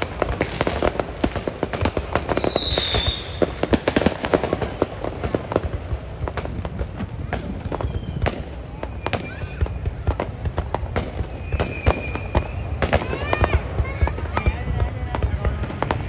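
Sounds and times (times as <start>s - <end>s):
firework whistle: 0.0s - 5.1s, 7.2s - 14.5s
fireworks cracking and popping: 0.0s - 16.0s.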